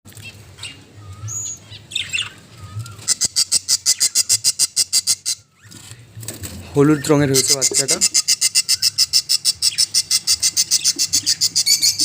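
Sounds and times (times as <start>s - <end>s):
budgerigars chirping: 0.2s - 5.8s, 6.8s - 12.0s.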